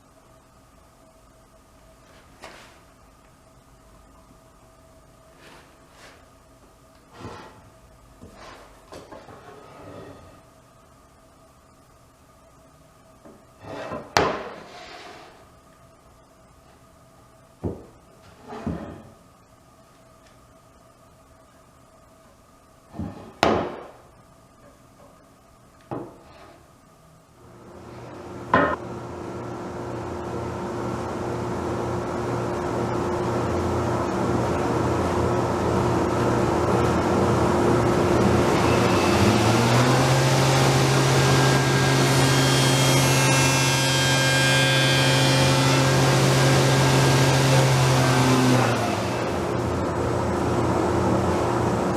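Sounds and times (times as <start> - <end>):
faint steady hum: 0.0 - 39.4
machine hum: 14.6 - 51.9.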